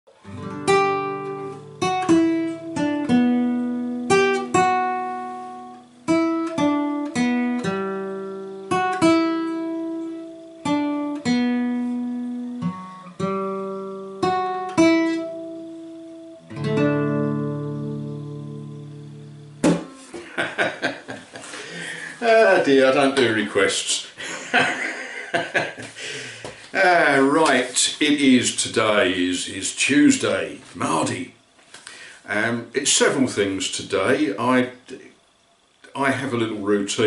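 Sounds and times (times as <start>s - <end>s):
acoustic guitar melody: 0.1s - 23.3s.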